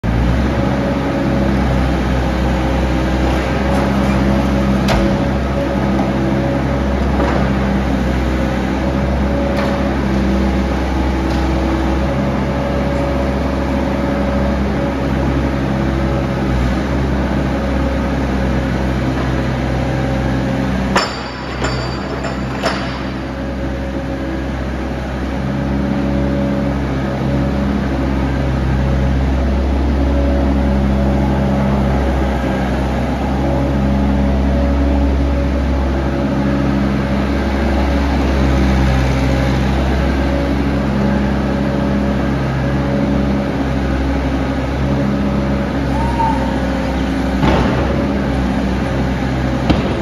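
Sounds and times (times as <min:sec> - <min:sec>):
excavator diesel engine running: 0:00.0 - 0:50.0
sharp knock: 0:49.7 - 0:50.0.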